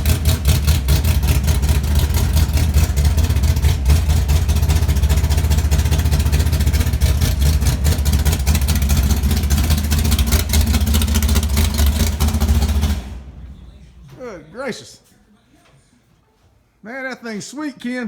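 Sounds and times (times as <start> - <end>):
car engine running with pulsing exhaust: 0.0 - 14.0.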